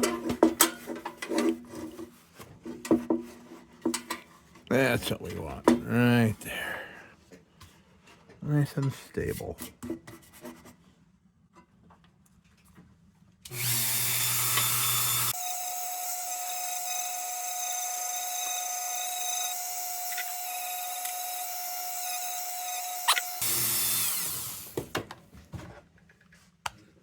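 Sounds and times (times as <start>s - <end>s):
sanding tool whining: 13.6s - 24.8s.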